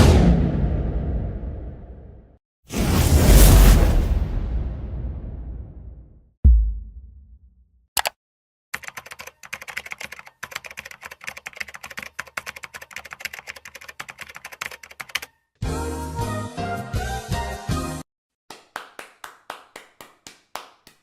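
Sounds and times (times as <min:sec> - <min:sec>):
low boom: 0:00.0 - 0:07.7
typing on keyboard: 0:08.8 - 0:15.4
music: 0:15.6 - 0:18.0.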